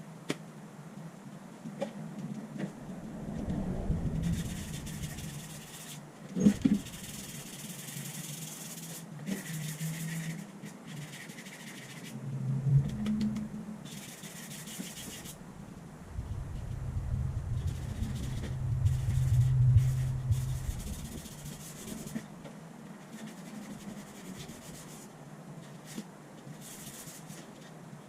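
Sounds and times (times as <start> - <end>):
low steady hum: 2.6 - 5.8, 12.1 - 14.0, 15.1 - 22.5.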